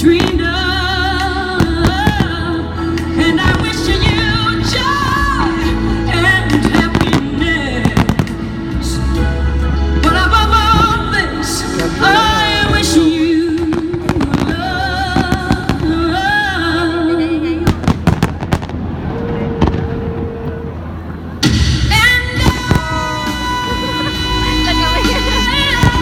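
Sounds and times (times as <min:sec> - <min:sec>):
song with sung melody: 0:00.0 - 0:18.4, 0:21.4 - 0:26.0
fireworks bangs: 0:01.6 - 0:02.5, 0:03.2 - 0:05.3, 0:06.5 - 0:08.5, 0:17.6 - 0:23.5.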